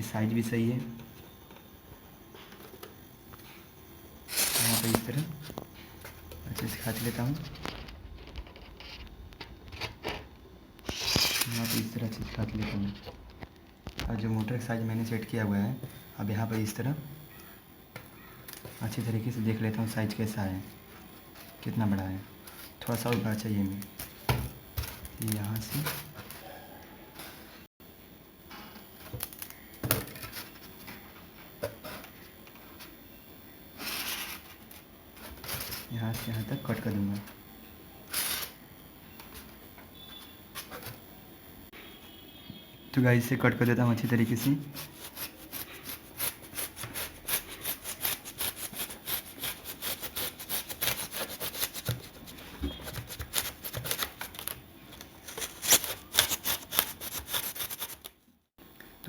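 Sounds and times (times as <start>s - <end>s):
scratchy foam rustle: 4.3s - 5.4s, 44.1s - 58.2s.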